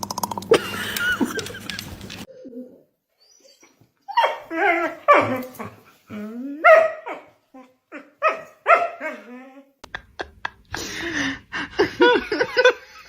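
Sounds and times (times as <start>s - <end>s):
dog barking and whining: 2.5s - 9.7s.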